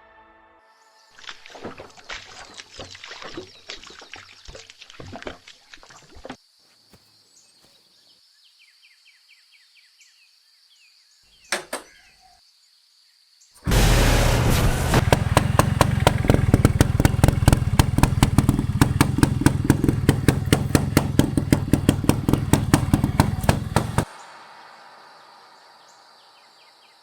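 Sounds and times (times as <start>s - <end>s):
sharp knocks: 14.5s - 24.1s.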